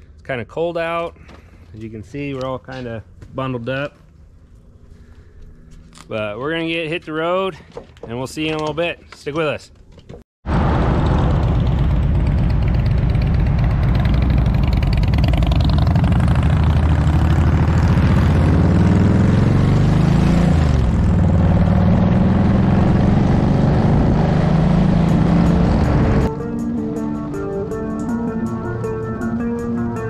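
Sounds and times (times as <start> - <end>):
motorcycle engine running: 11.1 - 26.3.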